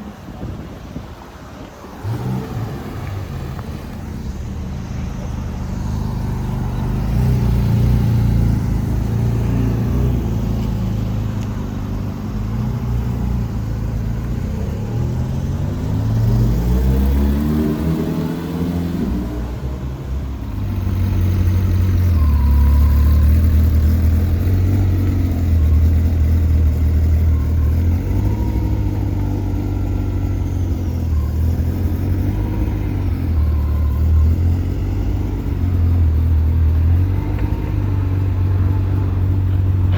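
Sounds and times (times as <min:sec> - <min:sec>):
low engine rumble: 0:00.0 - 0:17.6, 0:18.8 - 0:39.9
car engine revving: 0:01.9 - 0:11.4.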